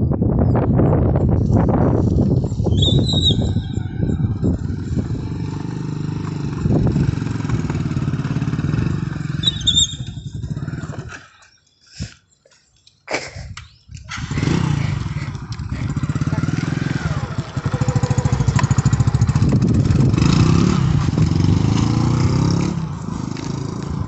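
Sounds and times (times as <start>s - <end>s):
motorcycle engine running: 1.0s - 11.2s, 14.1s - 24.0s
short high chirp: 9.4s - 10.2s.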